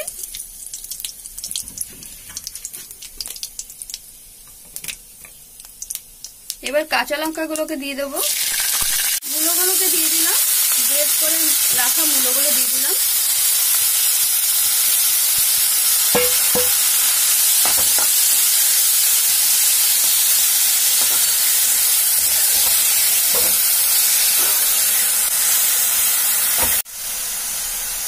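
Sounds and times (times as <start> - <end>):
radish sizzling in oil: 0.0 - 28.0
steel spatula scraping a pan: 20.9 - 25.1.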